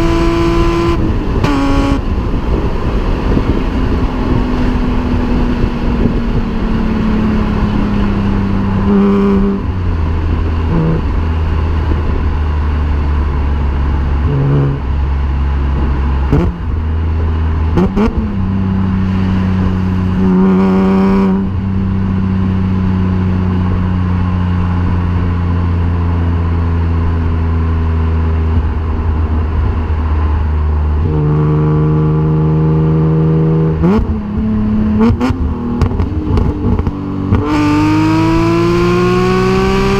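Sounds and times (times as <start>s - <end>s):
engine revving blips: 0.0s - 2.1s, 3.9s - 9.9s, 10.7s - 11.2s, 14.2s - 15.0s, 15.8s - 16.8s, 17.7s - 22.6s, 31.0s - 39.9s
car engine droning: 0.0s - 39.9s.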